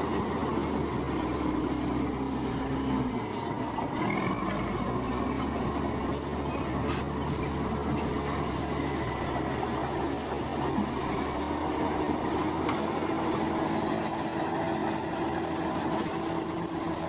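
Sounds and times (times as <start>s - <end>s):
heavy diesel machinery running: 0.0s - 17.0s
thin metallic squeals: 4.3s - 10.4s, 11.1s - 17.0s.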